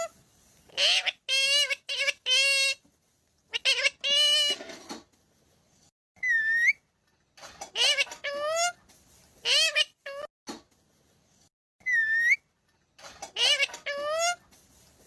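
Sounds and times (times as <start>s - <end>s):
parrot calling: 0.7s - 2.8s, 3.5s - 4.7s, 6.2s - 6.8s, 7.7s - 8.8s, 9.4s - 10.3s, 11.8s - 12.4s, 13.2s - 14.4s
parrot whistle: 6.2s - 6.8s, 11.8s - 12.4s.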